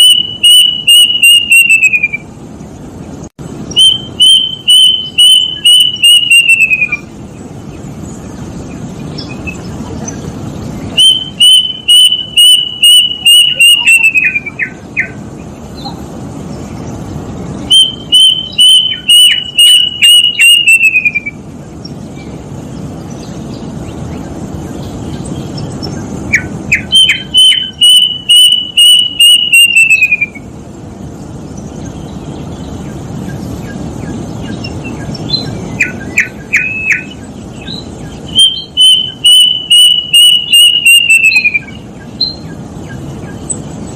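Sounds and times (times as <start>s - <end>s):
cuckoo plaintive whistles: 0.0s - 2.3s, 3.8s - 7.1s, 11.0s - 14.8s, 17.7s - 21.4s, 26.8s - 30.4s, 38.3s - 42.4s.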